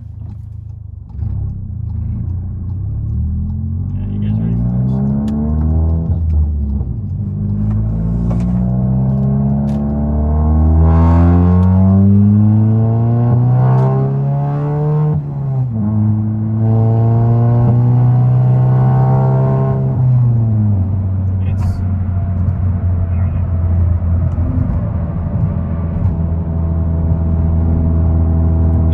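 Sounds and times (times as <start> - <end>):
car engine accelerating: 0.0 - 28.9
man talking: 3.9 - 5.0, 21.4 - 21.8, 23.1 - 23.5.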